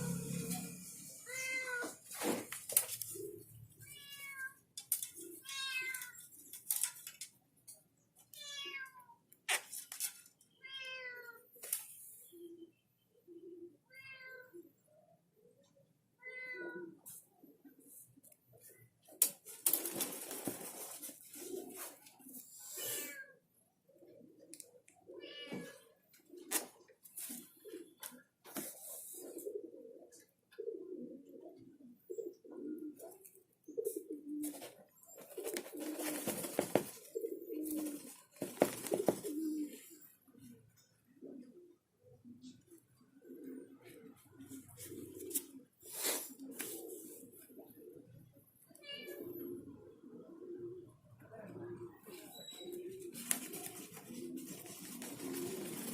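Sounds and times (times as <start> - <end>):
cat meowing: 0.0 - 2.0, 3.8 - 4.6, 5.4 - 6.2, 8.4 - 9.1, 13.9 - 14.5
pigeons cooing: 0.0 - 4.3, 16.6 - 55.9.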